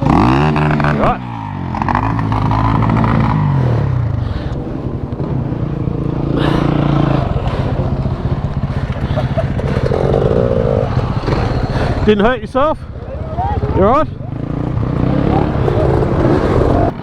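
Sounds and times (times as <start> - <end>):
dirt bike engine idling: 0.0 - 17.0.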